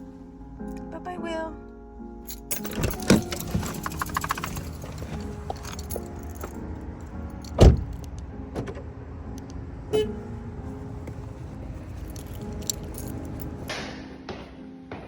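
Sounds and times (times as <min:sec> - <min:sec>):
car door shutting: 0:02.6 - 0:06.6, 0:07.5 - 0:08.9.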